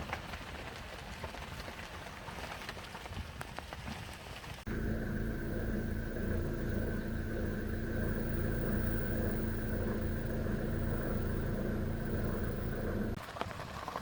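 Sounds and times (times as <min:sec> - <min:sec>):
vehicle engine running: 0:04.7 - 0:13.2.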